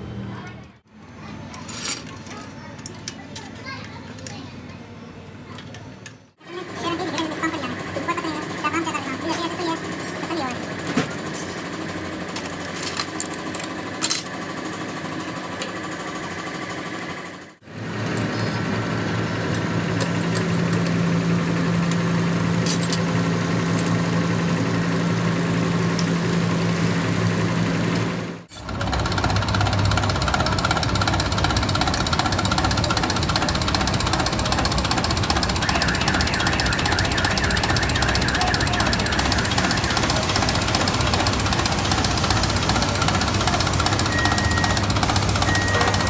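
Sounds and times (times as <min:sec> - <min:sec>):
workshop machinery running: 0:00.0 - 0:46.0
steady humming drone: 0:30.9 - 0:46.0.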